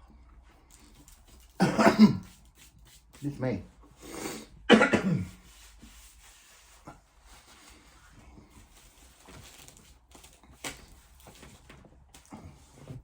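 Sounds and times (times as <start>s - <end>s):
rustling of food wrapping: 6.7s - 13.0s.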